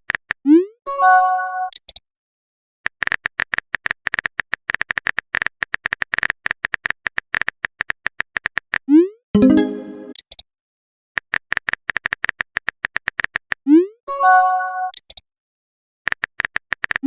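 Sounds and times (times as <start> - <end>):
chime: 9.4 - 10.1.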